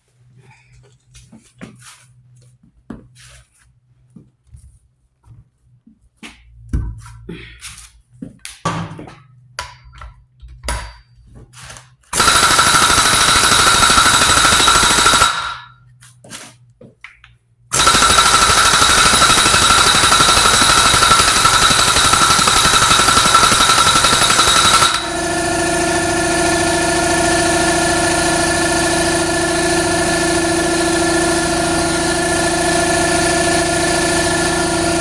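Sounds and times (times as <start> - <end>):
impact wrench hammering: 9.6 - 11.0, 12.2 - 15.8, 17.7 - 35.0.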